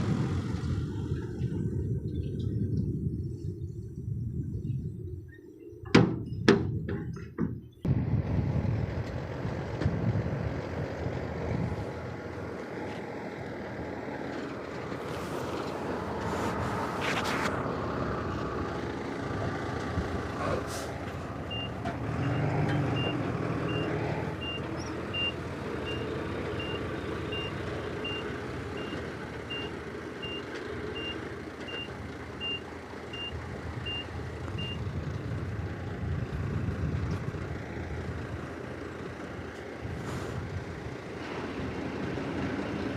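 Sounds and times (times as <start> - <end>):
diesel earthmoving machinery running: 0.0 - 4.6, 7.7 - 42.9
reversing alarm beeping: 21.5 - 26.0, 28.8 - 30.4, 31.0 - 34.8.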